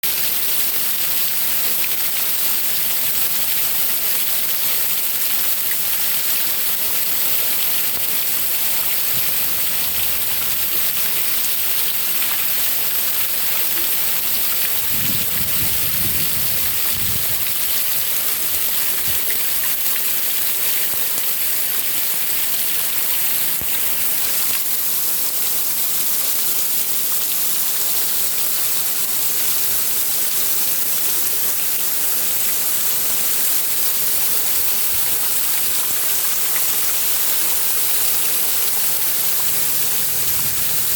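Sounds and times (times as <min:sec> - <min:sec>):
heavy rain falling: 0:06.6 - 0:20.4, 0:33.7 - 0:40.9.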